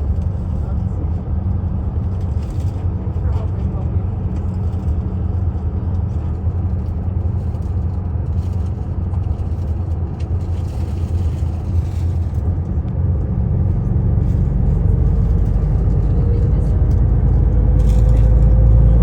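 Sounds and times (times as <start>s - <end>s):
car rumbling along road: 0.0s - 19.0s.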